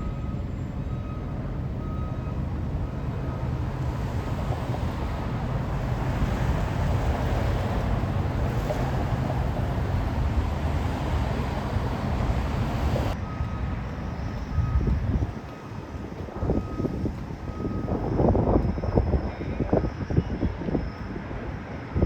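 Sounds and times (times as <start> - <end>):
backup alarm beeping: 0.0 - 4.1, 8.4 - 19.2
truck engine running: 0.0 - 18.2.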